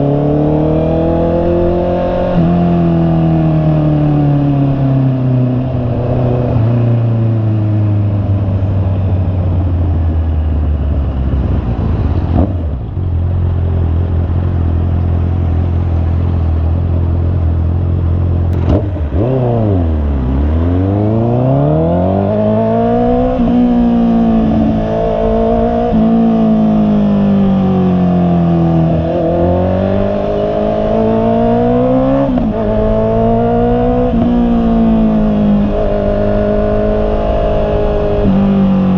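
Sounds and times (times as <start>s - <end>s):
motorcycle engine running: 5.3s - 21.3s.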